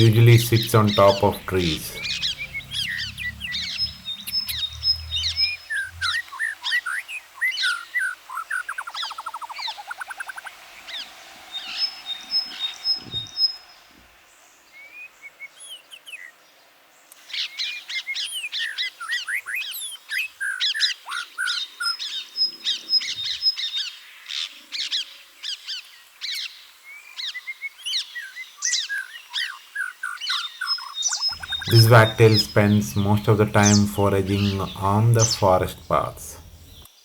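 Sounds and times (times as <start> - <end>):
wild birds chirping and singing: 0.0 - 6.3, 31.4 - 36.9.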